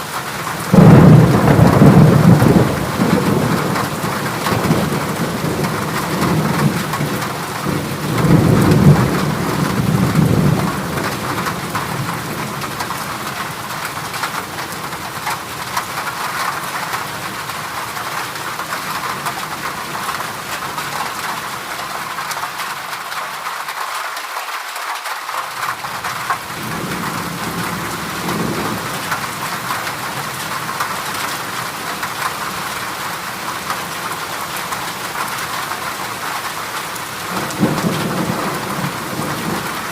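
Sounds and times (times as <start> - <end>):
heavy rain on a metal roof: 0.0 - 39.9
thunder rumbling: 0.6 - 15.0, 37.3 - 39.9.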